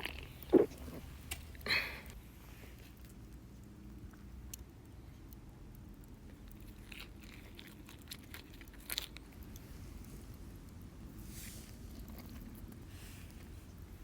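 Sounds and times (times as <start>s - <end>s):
chewing crisp food: 0.0s - 1.6s, 5.3s - 10.9s, 11.8s - 14.0s.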